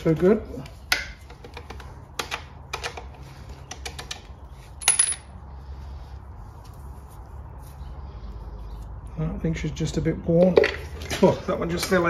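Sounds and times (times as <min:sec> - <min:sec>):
metal engine parts clinking: 0:03.8 - 0:05.3.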